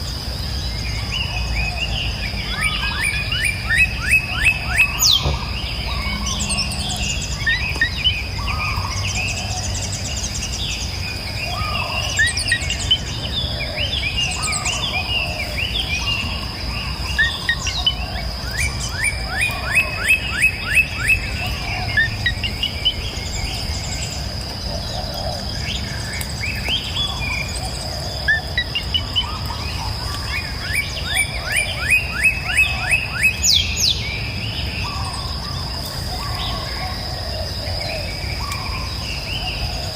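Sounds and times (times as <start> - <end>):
birds singing and trilling: 0.0 - 39.9
high-pitched insect drone: 2.3 - 13.8.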